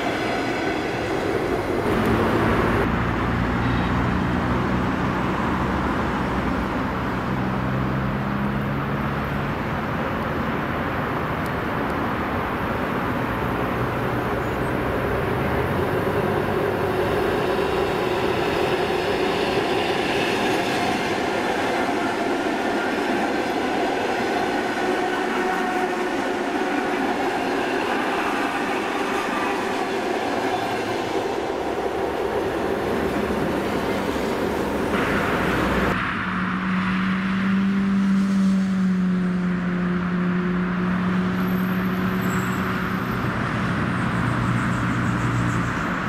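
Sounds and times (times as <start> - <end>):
train wheels rumbling on rail: 0.0 - 7.9, 8.6 - 36.1.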